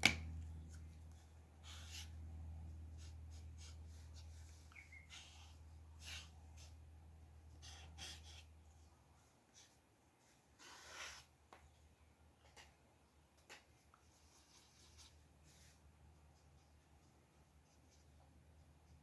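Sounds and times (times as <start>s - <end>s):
low steady hum: 0.0s - 10.3s
pen scratching on paper: 7.6s - 8.5s.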